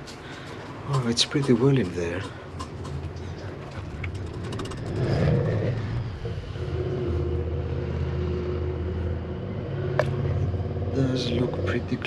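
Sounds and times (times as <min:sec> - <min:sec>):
rattling clicks and scraping: 0:00.0 - 0:06.1
low mechanical hum: 0:00.0 - 0:12.0.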